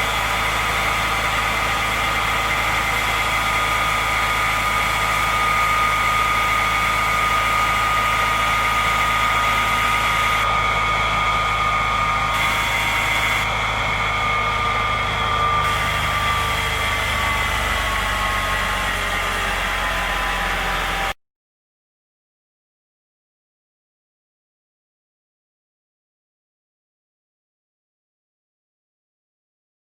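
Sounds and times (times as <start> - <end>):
fire truck engine idling: 0.0 - 21.0
high whine: 0.0 - 21.2.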